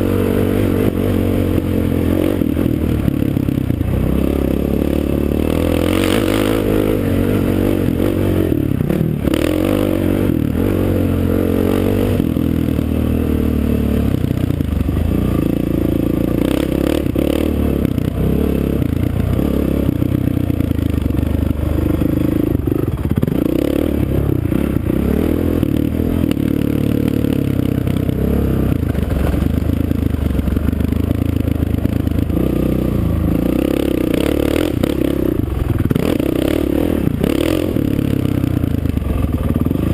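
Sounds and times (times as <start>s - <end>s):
off-road racing engine revving: 0.0s - 20.1s, 20.8s - 29.6s, 31.3s - 39.9s.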